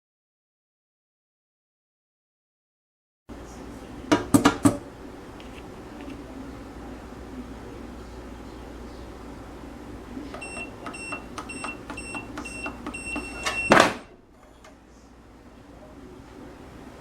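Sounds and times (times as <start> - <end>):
keypad button clicks with beeps: 10.4 - 14.0
loud lock clunk: 13.4 - 14.2.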